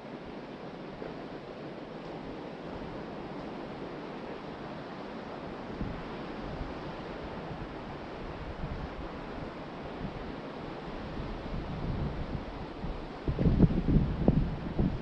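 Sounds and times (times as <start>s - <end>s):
ocean surf washing ashore: 0.0s - 15.0s
wind buffeting microphone: 5.5s - 15.0s.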